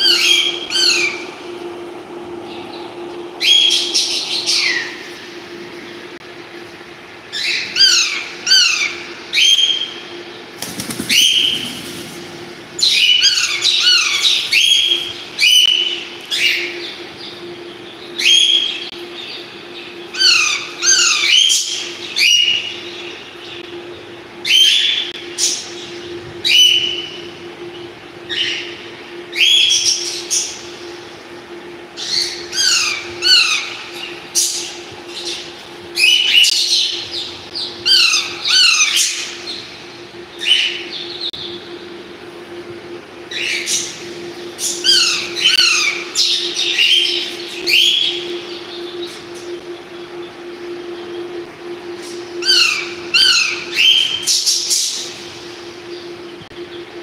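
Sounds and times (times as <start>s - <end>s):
steady low hum: 0.0s - 57.0s
parrots chirping and squawking: 12.8s - 15.6s, 20.2s - 21.8s, 32.0s - 33.8s, 37.9s - 39.4s, 44.6s - 48.1s, 52.4s - 55.0s.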